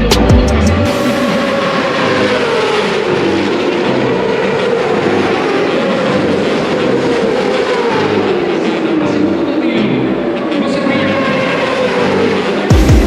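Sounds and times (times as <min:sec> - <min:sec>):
engine running with falling pitch: 0:00.0 - 0:13.0
wash of noise: 0:00.9 - 0:08.7.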